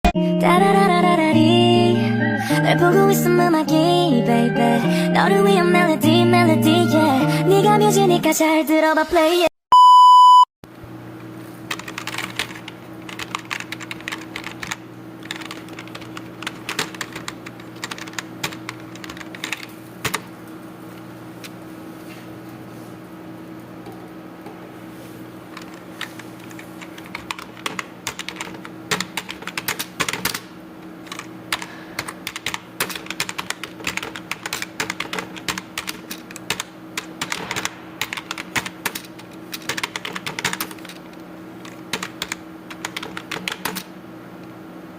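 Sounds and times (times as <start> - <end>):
keyboard typing: 11.7 - 20.3, 25.5 - 30.4, 31.1 - 43.9.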